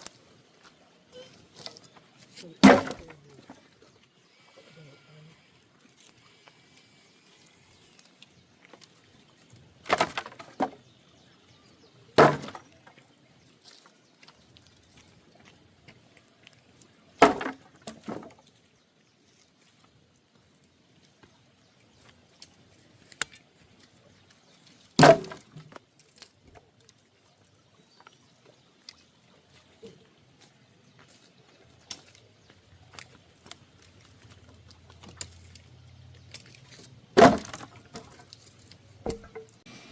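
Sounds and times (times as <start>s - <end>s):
firewood knocks: 2.6s - 3.2s, 9.8s - 10.8s, 12.2s - 12.8s, 17.2s - 18.3s, 25.0s - 25.7s, 37.2s - 38.3s, 39.0s - 39.6s.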